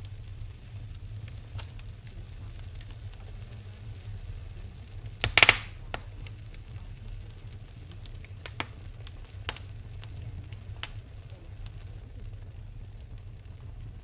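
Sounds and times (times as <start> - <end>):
low rumble of fire: 0.0 - 14.0
wood fire crackling and popping: 0.0 - 14.0.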